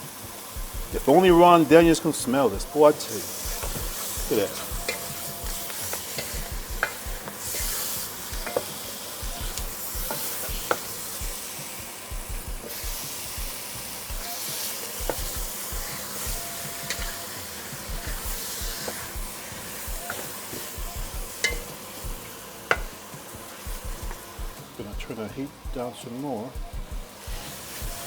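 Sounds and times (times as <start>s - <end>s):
chicken sizzling in oil: 0.0s - 28.0s
utensil clicking against pot: 3.4s - 11.4s, 12.3s - 25.2s.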